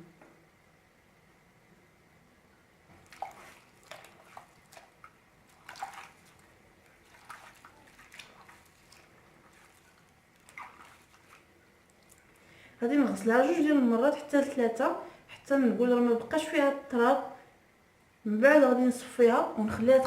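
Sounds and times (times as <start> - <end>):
leaves rinsed in bowl of water: 2.9 - 14.8.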